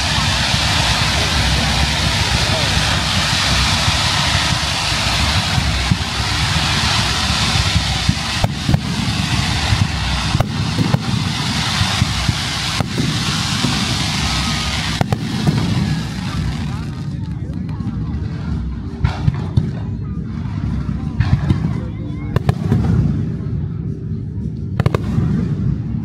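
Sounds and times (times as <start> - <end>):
firework shells bursting with bangs: 0.0 - 21.8
fountain fireworks hissing: 0.0 - 23.5, 24.8 - 25.8
low rumble: 0.0 - 26.0.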